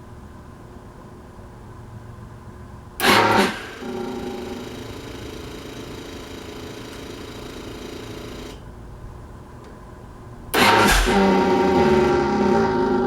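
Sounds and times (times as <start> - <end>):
sudden loud sound: 10.6 - 13.0.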